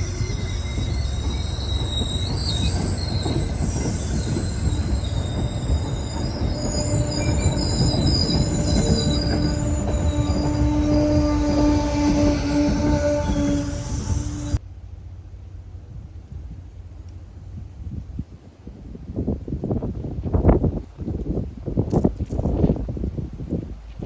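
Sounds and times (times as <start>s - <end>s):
high-pitched wheel squeal: 0.0s - 14.6s
train rumble: 0.0s - 19.1s.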